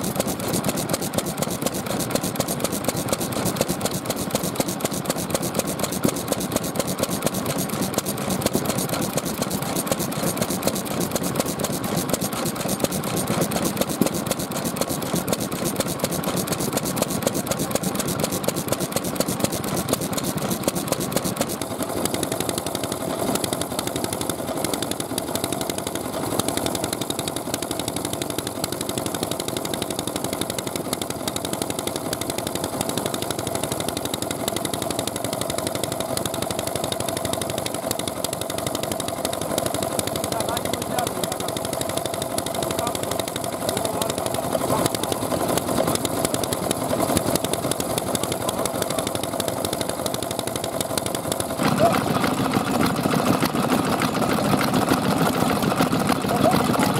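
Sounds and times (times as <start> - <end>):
stationary oil engines running: 0.0 - 56.9.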